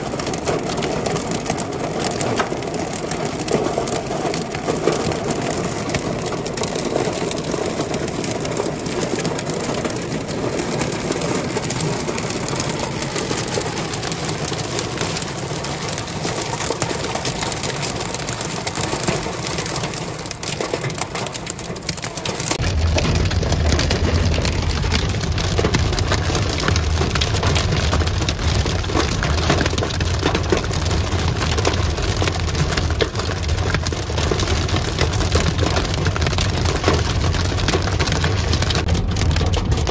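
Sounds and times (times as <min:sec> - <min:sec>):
hailstones pelting a car: 0:00.0 - 0:39.9
low steady rumble: 0:22.6 - 0:39.9.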